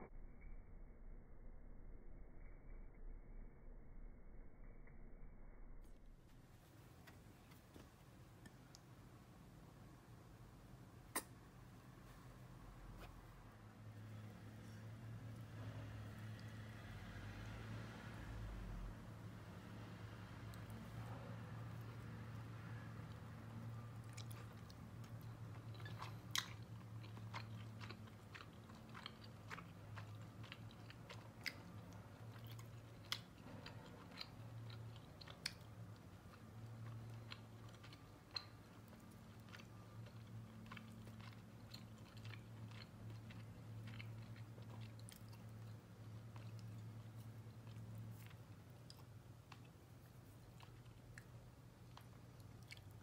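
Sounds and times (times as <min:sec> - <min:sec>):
low steady hum: 0:00.0 - 0:53.0
wet chewing smacks: 0:23.1 - 0:53.0.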